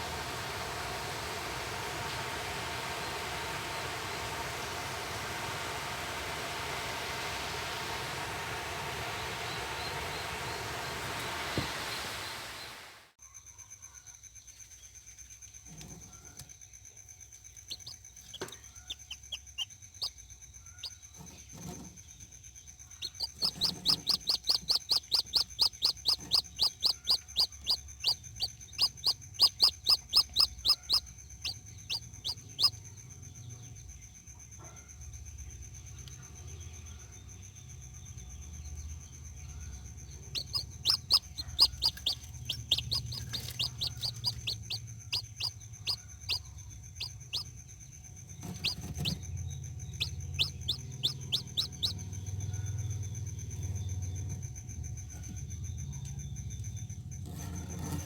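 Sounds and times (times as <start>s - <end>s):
faint steady high whine: 0.0s - 13.2s, 17.3s - 34.6s, 35.2s - 57.1s
chicks peeping: 17.7s - 19.7s, 23.0s - 32.8s, 40.3s - 46.4s, 47.0s - 47.4s, 48.4s - 49.2s, 49.9s - 52.0s.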